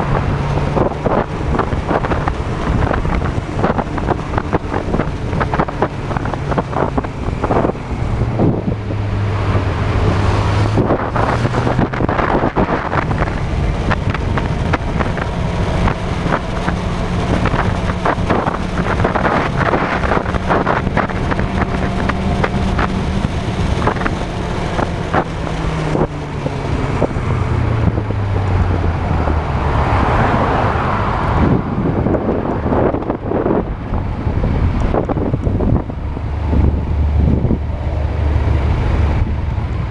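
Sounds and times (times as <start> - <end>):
motorcycle engine running: 0.0 - 29.0
wind buffeting microphone: 0.0 - 39.9.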